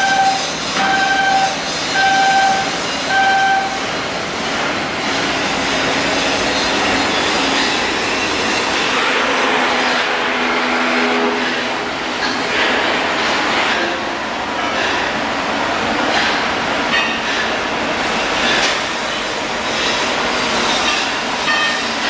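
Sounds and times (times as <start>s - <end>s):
warning beeper: 0.0s - 3.8s
steady machinery noise: 0.0s - 15.2s, 16.0s - 22.0s.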